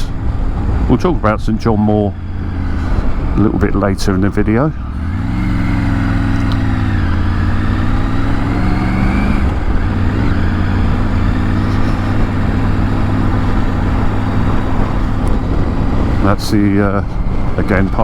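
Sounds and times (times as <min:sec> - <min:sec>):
motorcycle engine running: 0:00.0 - 0:18.0
wind and road noise: 0:00.0 - 0:18.0.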